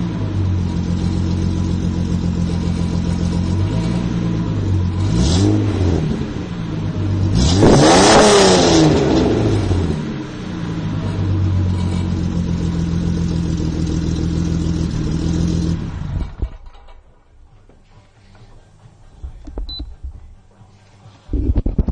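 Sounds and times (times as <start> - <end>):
car engine revving and idling: 0.0 - 16.6
faint scattered noises: 16.2 - 21.9.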